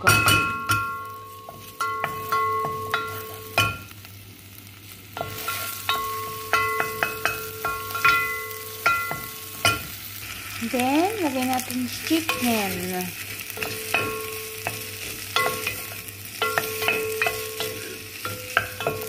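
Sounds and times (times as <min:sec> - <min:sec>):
aromatics sizzling in oil: 0:00.0 - 0:19.0.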